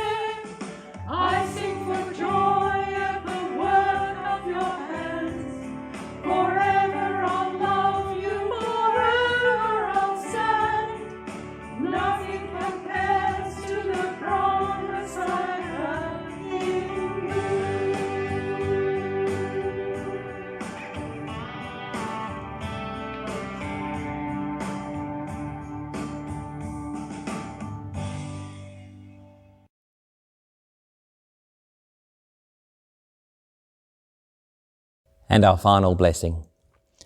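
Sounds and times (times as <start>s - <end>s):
group singing a hymn: 0.0s - 11.2s, 11.8s - 20.7s
guitar accompaniment: 0.0s - 29.4s.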